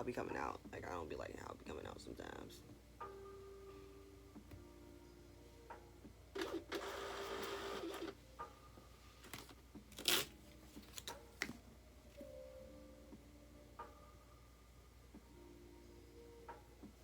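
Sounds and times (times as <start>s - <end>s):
label printer whirring: 6.4s - 8.1s.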